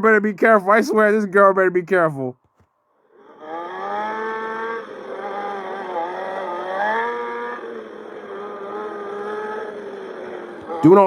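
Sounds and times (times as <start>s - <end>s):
car engine at high revs: 3.1s - 11.0s.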